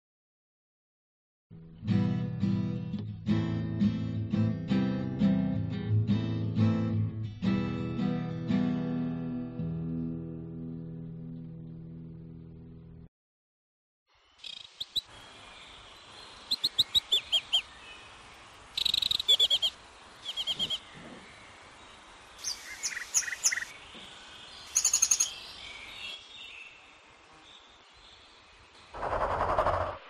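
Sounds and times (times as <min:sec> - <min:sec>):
faint background hiss: 0:14.1 - 0:28.9
birds chirping: 0:14.2 - 0:30.0.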